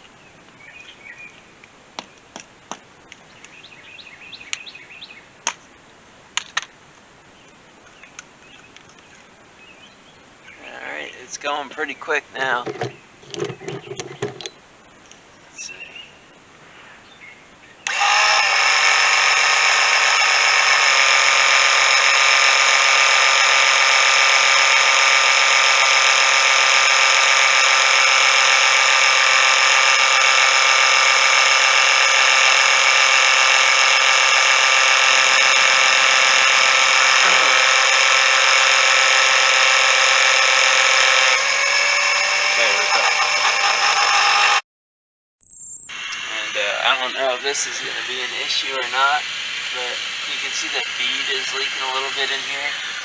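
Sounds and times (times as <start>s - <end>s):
small pump whining: 12.5s - 14.6s, 17.8s - 44.6s, 45.9s - 53.0s.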